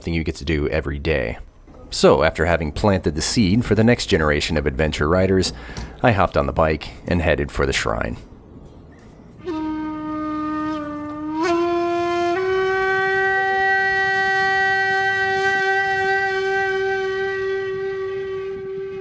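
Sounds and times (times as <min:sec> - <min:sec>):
horn-like wind instrument note: 0:09.4 - 0:19.0.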